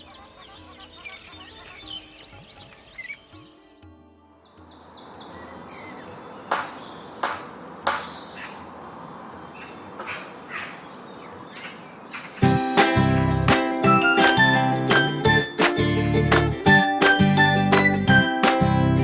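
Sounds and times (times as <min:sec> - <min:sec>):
bird harsh calls: 0:00.0 - 0:03.6, 0:04.5 - 0:12.5
soft background music: 0:00.0 - 0:06.3, 0:12.4 - 0:19.0.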